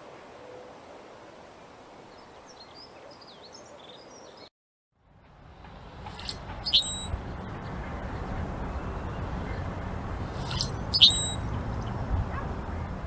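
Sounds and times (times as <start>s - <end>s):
low outdoor ambience: 0.0s - 13.0s
birds chirping: 2.1s - 4.5s, 6.2s - 13.0s.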